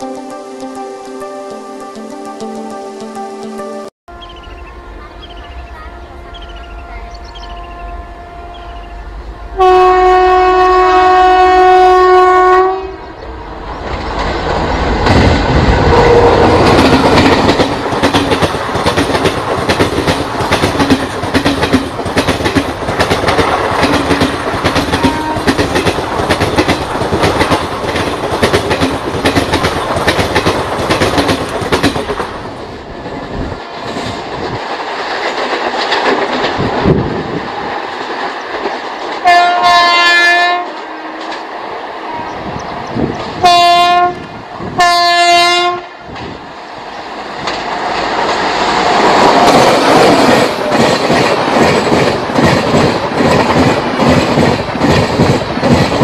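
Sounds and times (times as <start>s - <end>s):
locomotive air horn blasts: 5.8s - 13.1s, 15.8s - 16.7s, 24.9s - 25.6s, 39.2s - 41.4s, 43.4s - 44.2s, 44.8s - 45.9s
train wheels clattering over joints: 16.4s - 32.4s, 33.1s - 39.3s, 47.4s - 56.0s.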